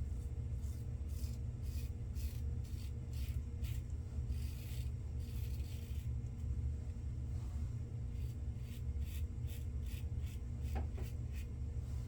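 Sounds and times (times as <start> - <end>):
steady low hum: 0.0 - 12.0
razor scraping stubble: 0.7 - 6.1, 8.2 - 11.5.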